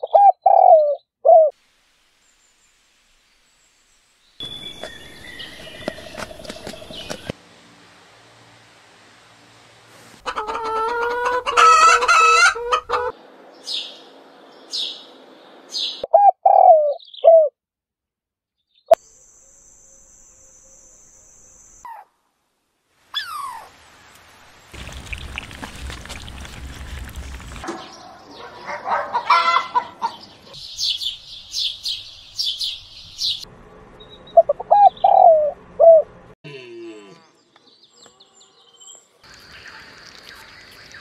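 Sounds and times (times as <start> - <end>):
bird calls and chirps: 3.4 - 7.3, 13.6 - 17.5, 26.3 - 36.0, 37.4 - 41.0
dense noise: 24.7 - 27.6.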